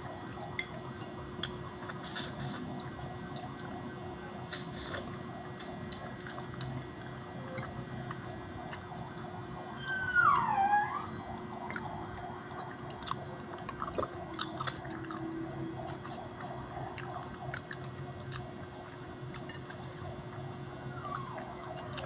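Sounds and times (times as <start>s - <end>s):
person chewing food: 4.4s - 9.6s, 11.3s - 22.0s.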